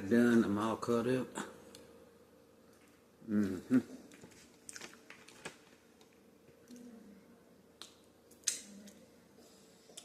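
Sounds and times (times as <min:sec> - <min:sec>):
person humming: 0:03.2 - 0:04.0
person chewing food: 0:04.0 - 0:06.8
wet mouth clicks and smacks: 0:07.8 - 0:09.0.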